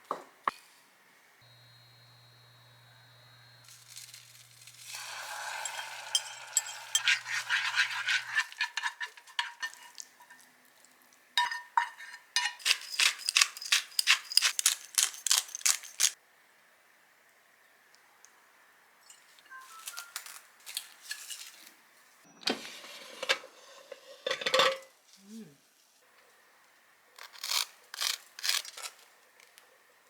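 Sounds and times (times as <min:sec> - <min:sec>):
hiss: 0:04.8 - 0:07.2
utensil clinking against bowl: 0:04.9 - 0:10.5, 0:11.4 - 0:14.8.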